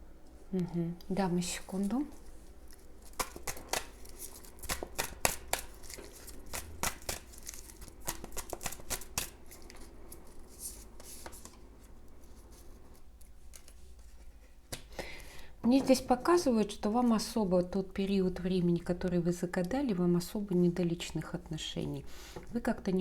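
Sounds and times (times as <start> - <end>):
cards being shuffled: 1.7 - 11.6.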